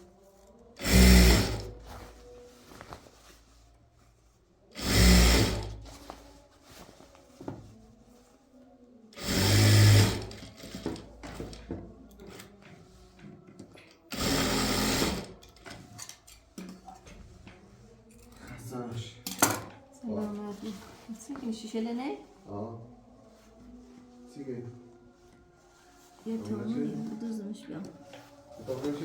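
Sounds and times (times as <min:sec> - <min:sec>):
sewing machine stitching: 0:00.8 - 0:01.8, 0:04.8 - 0:05.9, 0:09.2 - 0:11.6, 0:14.1 - 0:15.4.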